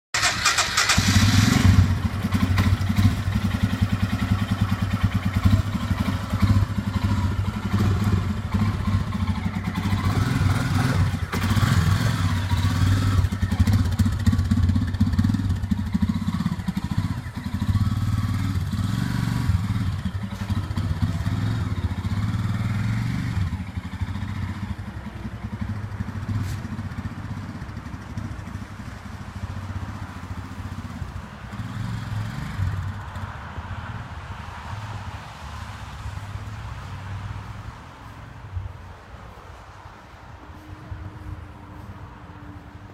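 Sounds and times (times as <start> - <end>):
engine humming: 0.2 - 32.7.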